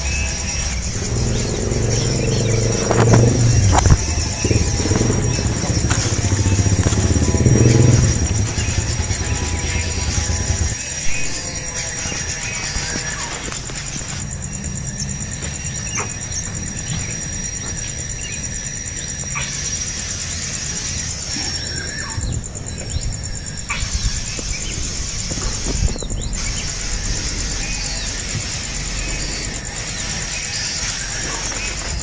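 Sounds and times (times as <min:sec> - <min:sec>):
bird chirps: 0:00.0 - 0:32.0
pulsing high-pitched drone: 0:00.0 - 0:32.0
low rumble: 0:00.1 - 0:11.3.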